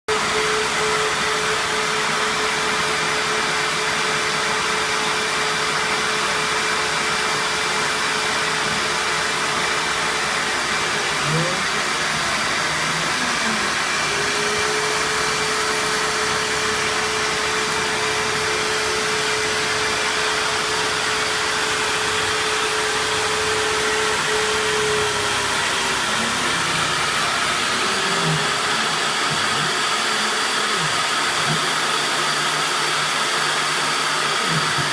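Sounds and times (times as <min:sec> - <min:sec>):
stepper motor whine: 0:00.1 - 0:34.9
milling machine rushing noise: 0:05.5 - 0:32.0.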